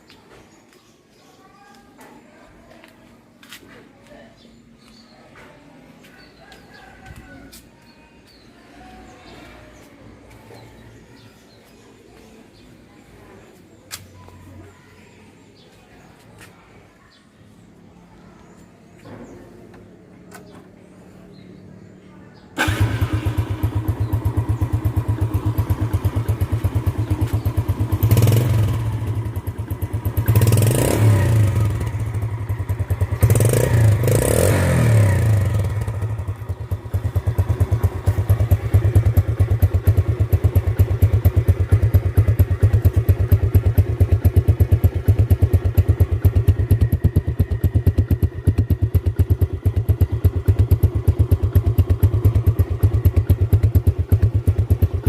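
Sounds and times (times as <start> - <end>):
motorcycle engine revving and idling: 19.7 - 55.0.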